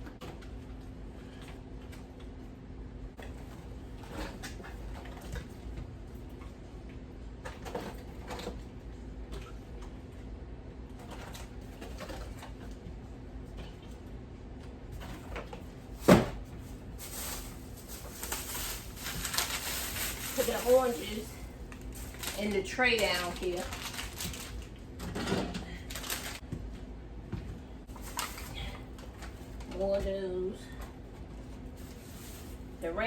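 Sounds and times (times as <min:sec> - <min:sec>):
groceries knocking and rustling: 0:03.2 - 0:06.5, 0:07.4 - 0:10.0, 0:10.9 - 0:12.9, 0:14.6 - 0:26.7, 0:27.3 - 0:32.9.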